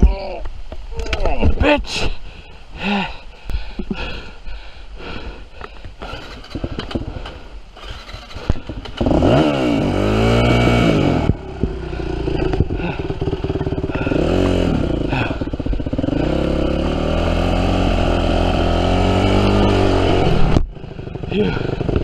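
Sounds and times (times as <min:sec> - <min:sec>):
dirt bike engine revving: 0:06.0 - 0:22.0.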